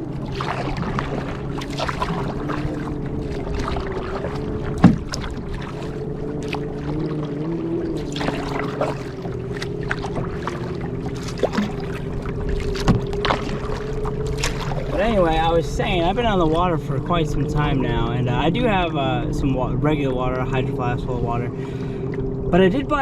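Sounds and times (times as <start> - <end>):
water splashing and dripping: 0.0 - 15.0
steady low hum: 0.0 - 23.0.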